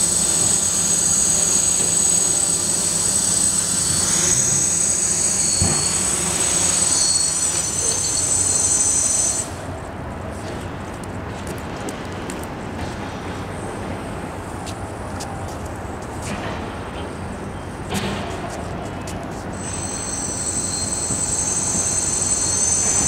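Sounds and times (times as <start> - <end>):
drone motors whining: 0.0 - 9.6, 19.6 - 23.0.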